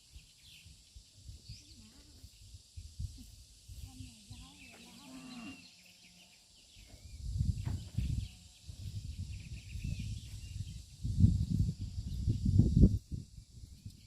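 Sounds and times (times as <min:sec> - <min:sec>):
wind buffeting microphone: 0:06.9 - 0:14.0.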